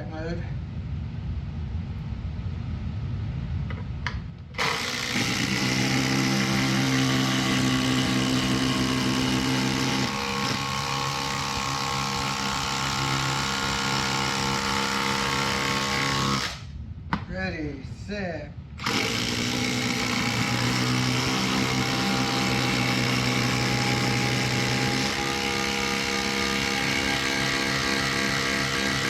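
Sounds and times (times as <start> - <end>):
cordless impact drivers hammering: 4.6 - 16.6, 18.8 - 29.0.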